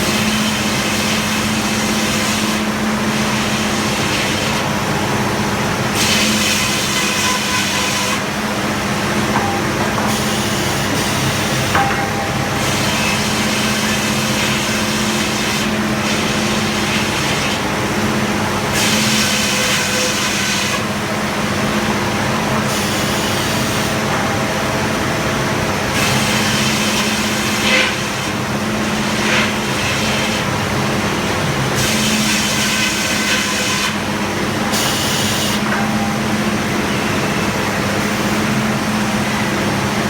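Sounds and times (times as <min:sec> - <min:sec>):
sawmill power unit running: 0:00.0 - 0:40.0.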